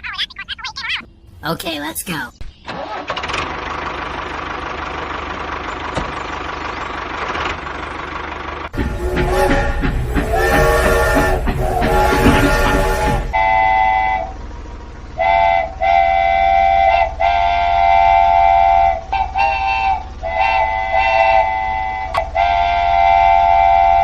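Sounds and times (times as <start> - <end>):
train horn blasts: 8.8 - 14.6, 15.2 - 24.0.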